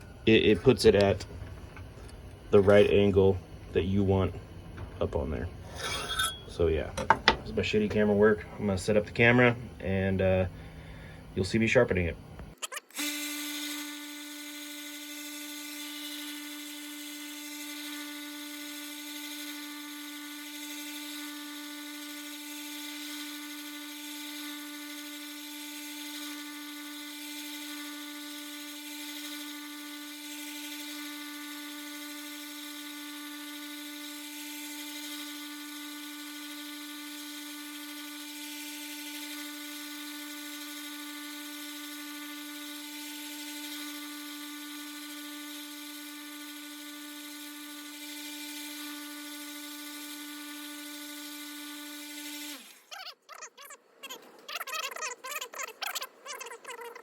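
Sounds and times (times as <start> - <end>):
belt sander running: 13.0 - 52.9.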